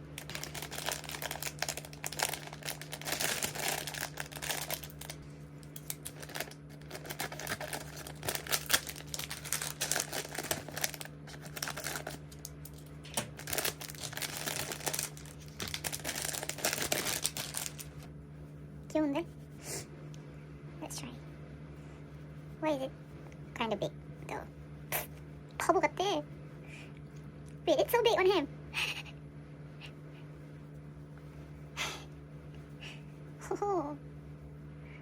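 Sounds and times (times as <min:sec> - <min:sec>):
packaging wrap crinkling: 0:00.0 - 0:18.1.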